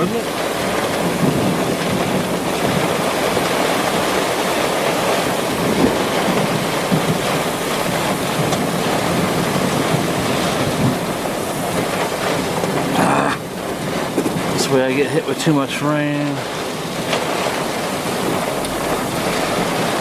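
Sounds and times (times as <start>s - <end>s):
wind buffeting microphone: 0.0s - 15.8s
heavy rain: 0.0s - 20.0s.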